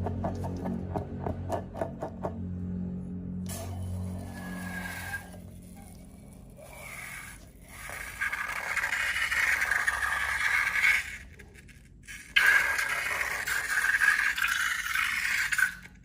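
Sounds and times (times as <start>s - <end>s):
low background music: 0.0s - 6.6s
slime scraping and rubbing: 4.4s - 16.0s.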